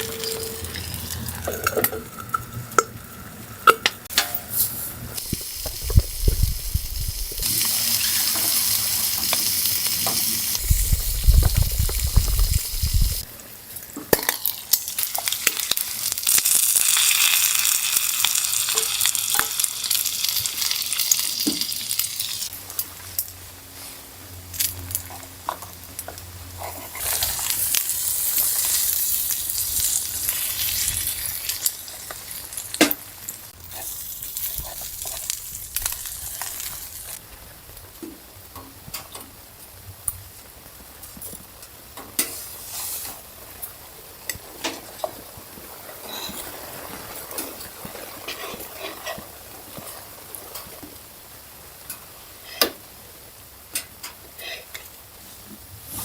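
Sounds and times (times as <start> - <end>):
hissing sizzling: 0.0 - 13.8
low rumbles: 5.0 - 7.5, 10.6 - 13.3.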